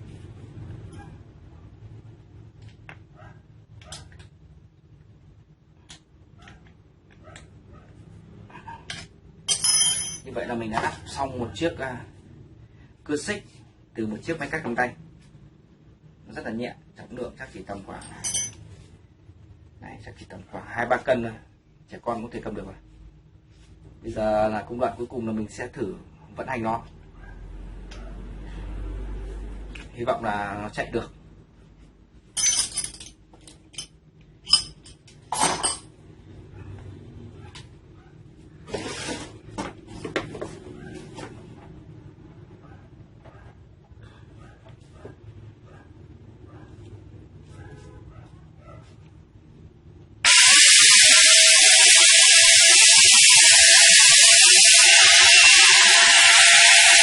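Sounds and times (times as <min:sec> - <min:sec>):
metal tool clinking: 0:09.5 - 0:10.3, 0:18.0 - 0:18.6, 0:32.4 - 0:35.9
angle grinder chainsaw running: 0:50.3 - 0:57.0.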